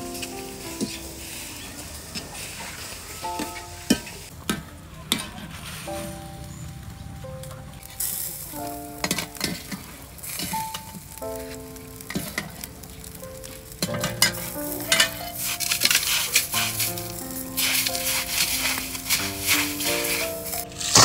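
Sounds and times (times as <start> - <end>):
background music with held notes: 0.0 - 2.4, 3.1 - 4.3, 5.8 - 21.0
hissing sizzle in wok: 0.0 - 21.0
hand digging into crushed ice: 15.0 - 21.0.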